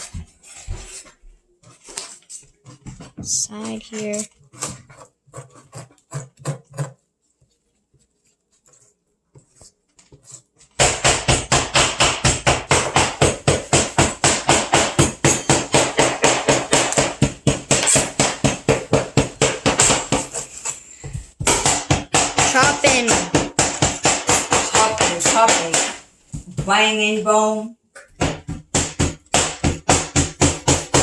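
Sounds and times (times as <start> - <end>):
cleaver chopping on cutting board: 10.8 - 26.0, 28.2 - 31.0.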